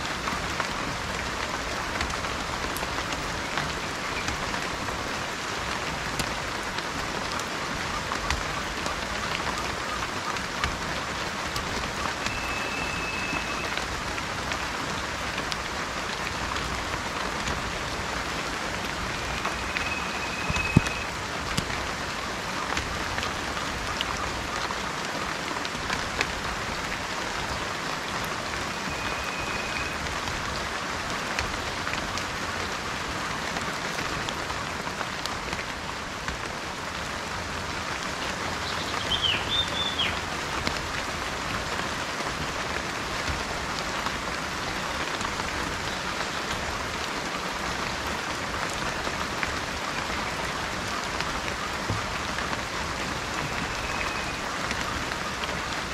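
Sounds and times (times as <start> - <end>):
rain drops ticking: 0.0 - 55.9
steady rain: 0.0 - 55.9
bird whistles: 12.3 - 13.7, 19.5 - 21.1, 28.9 - 30.0, 39.0 - 40.2
bird chirp: 38.6 - 40.2.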